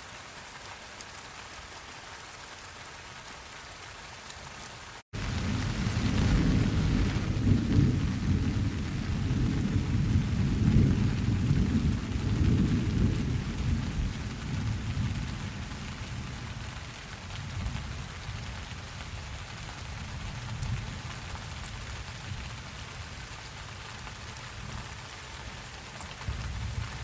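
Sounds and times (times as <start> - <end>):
steady rain: 0.0 - 27.0
thunder rumbling: 5.2 - 16.8.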